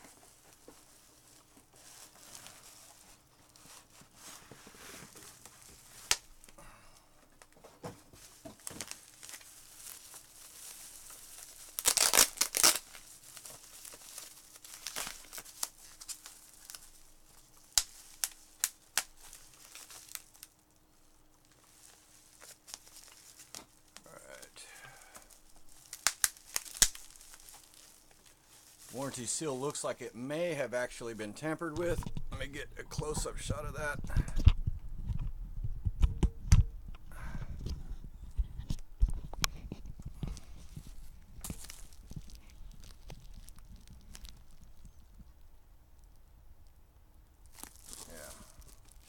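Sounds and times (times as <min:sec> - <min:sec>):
packaging tearing and crinkling: 0:00.0 - 0:06.6, 0:08.1 - 0:20.6, 0:21.3 - 0:29.2, 0:40.1 - 0:45.3, 0:47.4 - 0:49.0.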